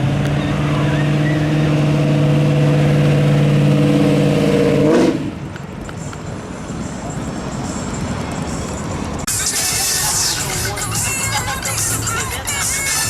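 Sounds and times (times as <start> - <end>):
car engine revving high: 0.0 - 5.4.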